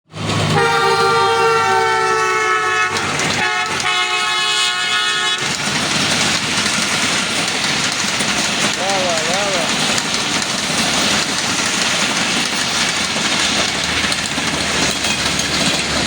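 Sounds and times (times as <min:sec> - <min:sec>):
train rumble: 0:00.1 - 0:16.0
train horn blasts: 0:00.5 - 0:05.6.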